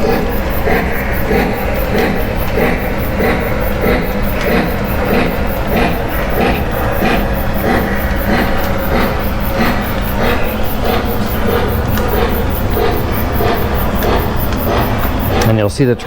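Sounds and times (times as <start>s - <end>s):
model train rumbling on track: 0.0s - 16.0s.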